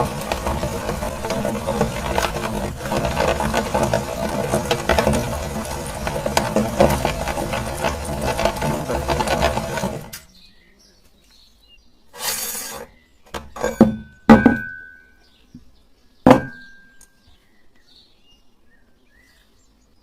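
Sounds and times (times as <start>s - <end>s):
hard objects clinking: 0.0s - 10.2s
meat grinder motor: 0.0s - 10.2s.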